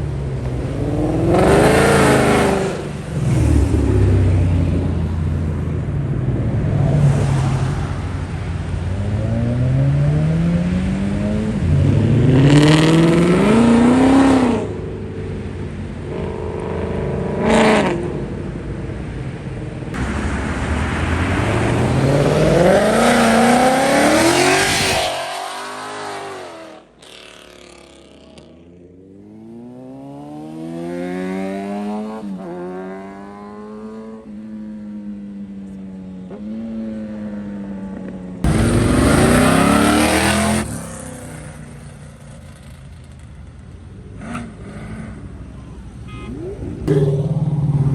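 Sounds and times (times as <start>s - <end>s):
muscle cars accelerating hard: 38.4s - 43.2s.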